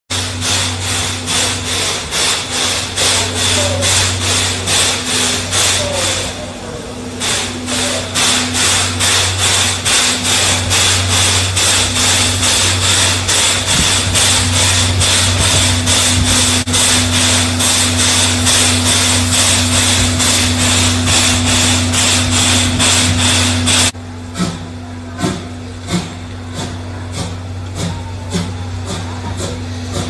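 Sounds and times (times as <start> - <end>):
steady low hum: 0.1 - 30.0
steam locomotive chuffing: 0.1 - 30.0.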